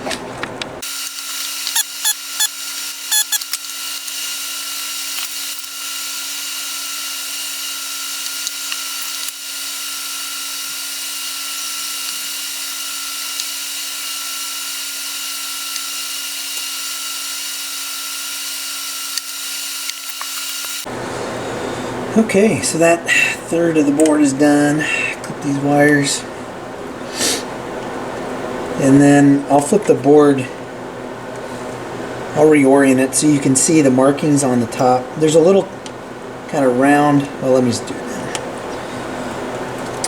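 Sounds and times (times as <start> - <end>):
small electric motor whining: 0.8 - 20.9.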